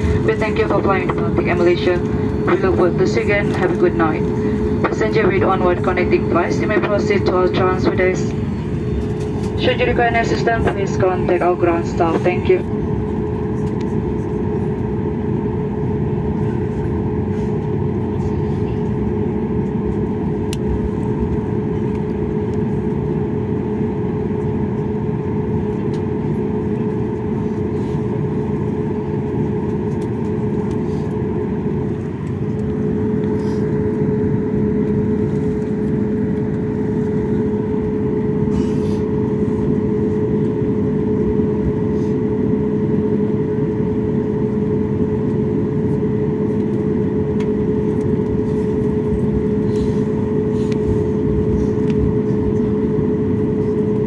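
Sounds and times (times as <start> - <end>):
airliner cabin drone: 0.0 - 54.0.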